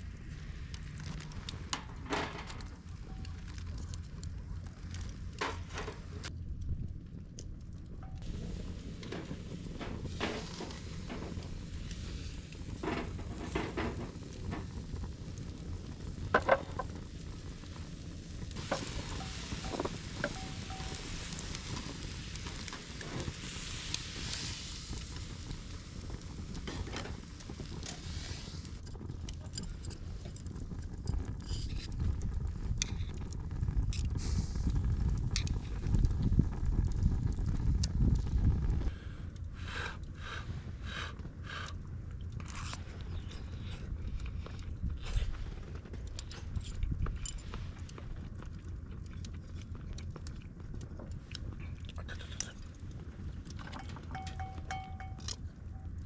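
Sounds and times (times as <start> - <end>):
low steady rumble: 0.0 - 56.0
food sizzling: 8.2 - 28.8
cooking utensils clicking: 53.8 - 55.4.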